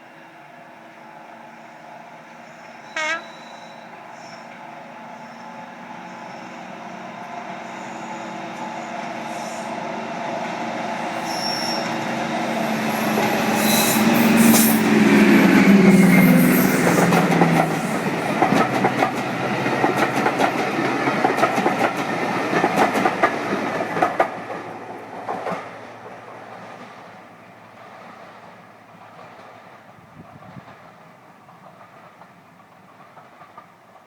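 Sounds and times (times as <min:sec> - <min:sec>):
train wheels clicking over rail joints: 0:13.1 - 0:24.6, 0:27.7 - 0:34.0.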